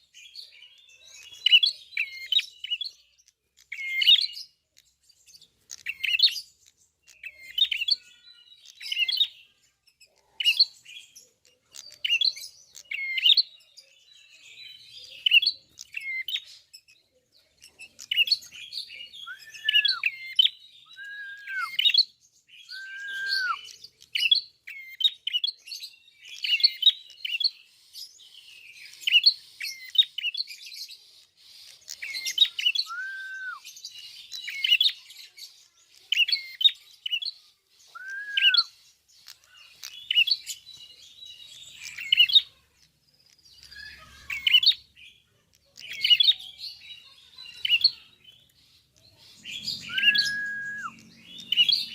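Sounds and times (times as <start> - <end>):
bird high sharp chirps: 0.0 - 51.9
bird whistled notes: 19.2 - 22.0, 22.6 - 23.8, 32.1 - 33.7, 37.9 - 38.7, 49.4 - 51.9.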